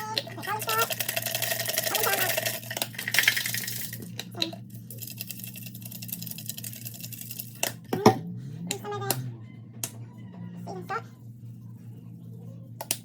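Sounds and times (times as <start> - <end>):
rapid kitchen rattles and clicks: 0.0 - 10.8
steady low hum: 0.0 - 13.0.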